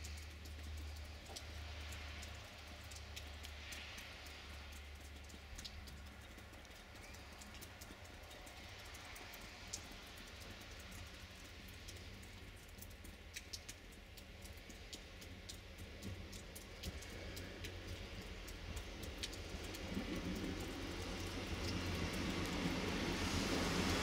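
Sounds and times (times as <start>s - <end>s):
light ticks: 0.0s - 24.0s
train engine rumble: 19.5s - 24.0s.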